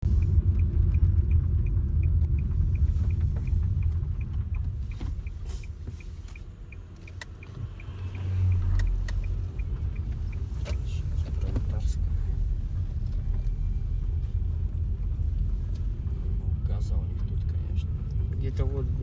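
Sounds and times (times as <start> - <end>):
motor vehicle rumble: 0.0 - 19.0
faint high ticking beep: 0.2 - 11.1.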